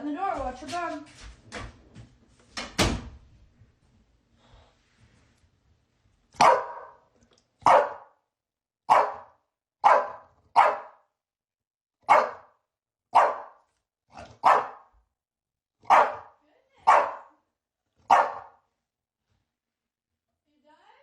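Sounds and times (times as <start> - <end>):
dog barking: 6.4 - 8.2, 8.9 - 11.1, 12.0 - 15.0, 15.8 - 17.4, 18.0 - 18.7.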